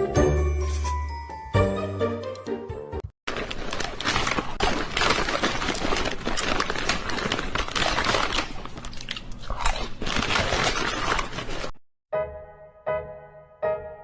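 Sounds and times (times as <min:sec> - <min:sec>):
close-up chewing crunches: 0:03.3 - 0:11.8.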